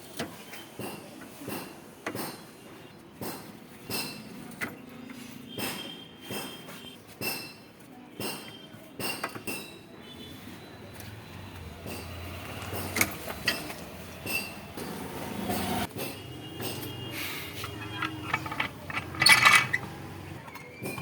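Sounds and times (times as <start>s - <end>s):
tools knocking on metal: 17.6s - 20.0s.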